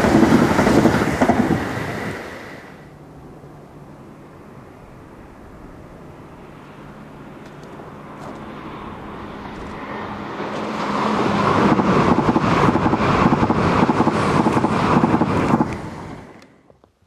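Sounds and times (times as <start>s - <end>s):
wheels clacking on rails: 0.0s - 2.2s, 9.4s - 16.8s
train low hum: 0.0s - 17.0s.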